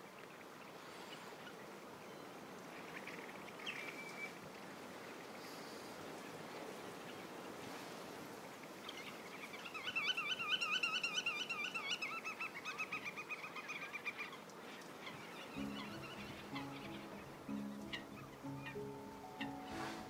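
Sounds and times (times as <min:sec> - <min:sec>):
steady outdoor hiss: 0:00.0 - 0:20.0
bird trilling: 0:15.4 - 0:20.0
music: 0:15.6 - 0:20.0.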